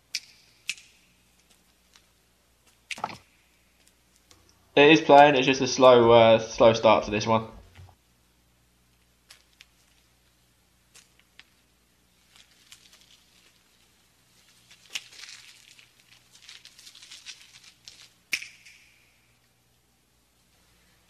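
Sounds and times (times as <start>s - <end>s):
steady low hum: 0.0s - 21.0s
faint clicks and crackles: 8.9s - 19.5s.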